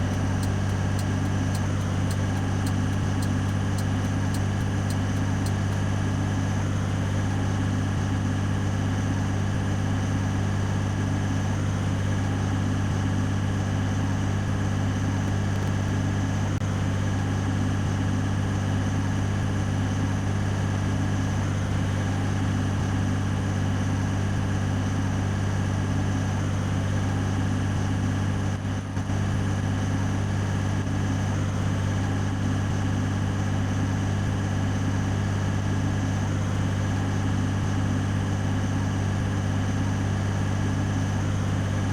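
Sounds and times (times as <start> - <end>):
diesel truck engine running: 0.0 - 41.9.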